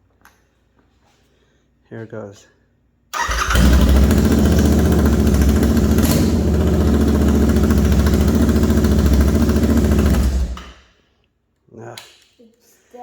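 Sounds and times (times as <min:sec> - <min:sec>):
motorcycle engine idling loudly: 0:03.3 - 0:10.6.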